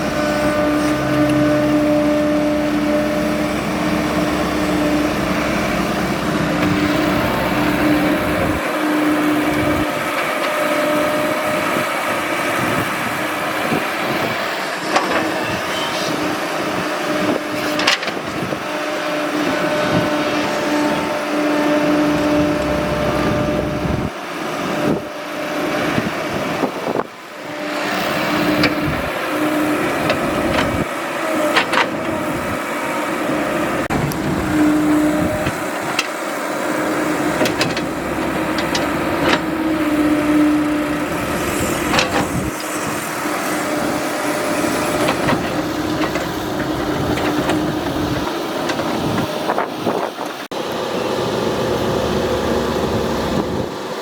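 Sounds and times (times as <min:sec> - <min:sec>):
humming tone: 0:00.0 - 0:10.0, 0:19.4 - 0:24.1
excavator engine running: 0:00.0 - 0:54.0.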